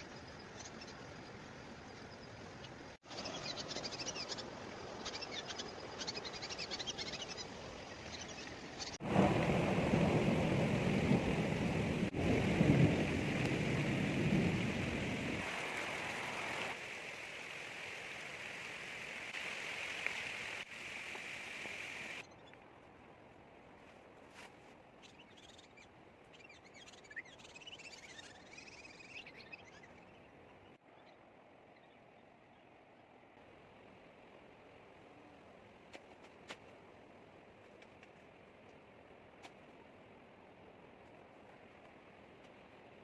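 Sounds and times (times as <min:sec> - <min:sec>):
rain falling: 0:08.9 - 0:22.2.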